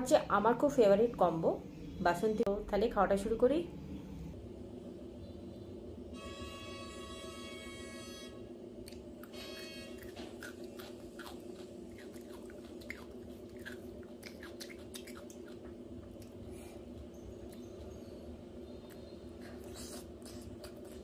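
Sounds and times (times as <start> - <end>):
steady low hum: 0.0 - 21.0
wet mouth clicks: 8.8 - 9.4, 10.0 - 16.4, 18.8 - 21.0
chewing and crunching: 8.8 - 21.0.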